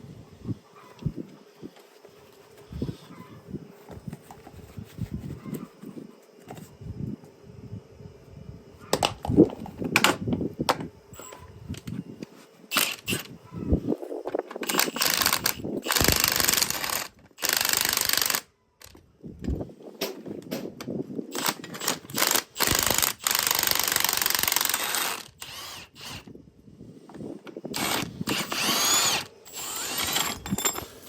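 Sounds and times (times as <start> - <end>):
metal tools knocking and clanking: 30.1 - 31.0.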